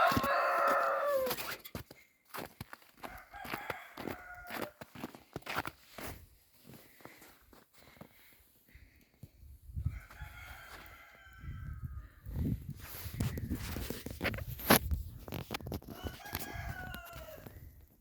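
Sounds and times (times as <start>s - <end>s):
rooster crowing: 0.0s - 1.4s, 3.0s - 5.1s, 9.8s - 12.2s, 15.9s - 17.6s
rustling and thumping near microphone: 12.8s - 15.9s.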